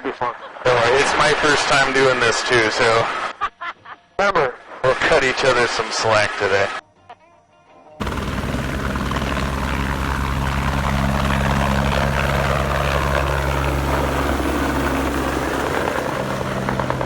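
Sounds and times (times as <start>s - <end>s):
helicopter rotor and engine drone: 8.0s - 17.0s.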